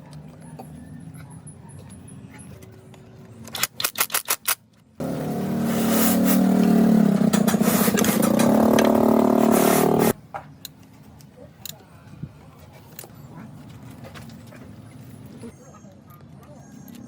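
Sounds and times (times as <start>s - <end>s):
sharp noise bursts: 5.0s - 10.2s.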